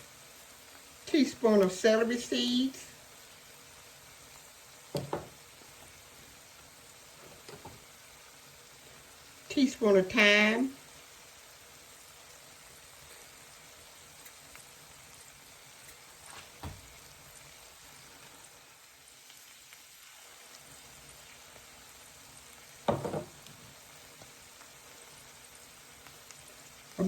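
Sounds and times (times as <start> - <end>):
vegetables sizzling in butter: 0.0 - 27.0
soft knock: 5.0 - 5.3, 22.9 - 23.3.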